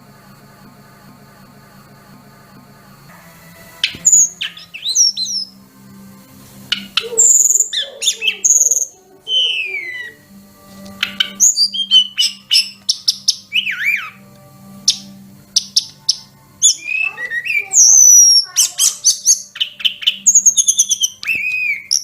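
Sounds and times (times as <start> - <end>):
bird whistling and chirping: 3.7 - 5.6, 6.7 - 10.3, 10.9 - 14.2, 14.8 - 22.0.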